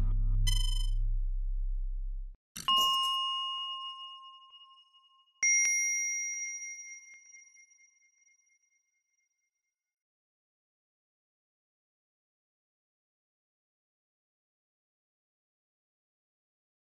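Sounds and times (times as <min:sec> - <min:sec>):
low drone: 0:00.0 - 0:02.3
ding chimes: 0:02.7 - 0:08.4.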